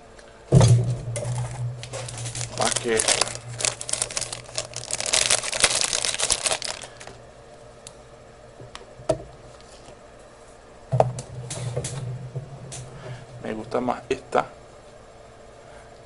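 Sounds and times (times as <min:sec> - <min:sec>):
low hum: 0:00.0 - 0:16.0
braid crinkling and rustling: 0:01.9 - 0:07.2.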